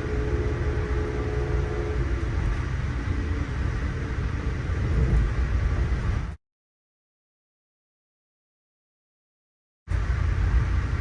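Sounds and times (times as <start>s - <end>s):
faint steady tones: 0.0s - 6.2s
train rumbling on rails: 0.0s - 6.4s, 9.9s - 11.0s.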